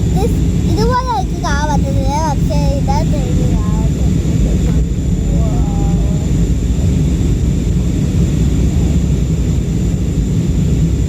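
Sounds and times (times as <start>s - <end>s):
jet engine cabin rumble: 0.0s - 11.0s.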